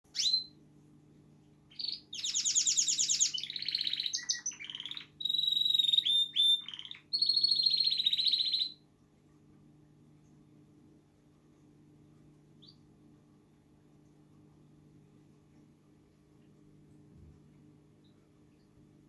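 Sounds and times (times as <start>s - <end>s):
canary singing: 0.1s - 0.6s, 1.7s - 8.8s, 12.6s - 12.9s.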